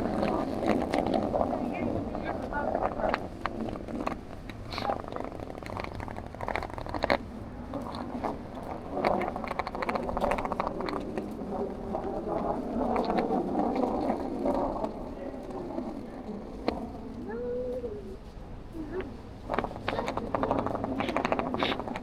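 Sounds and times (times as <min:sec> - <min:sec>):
indistinct voices: 0:00.0 - 0:04.0, 0:11.9 - 0:22.0
traffic: 0:00.0 - 0:22.0.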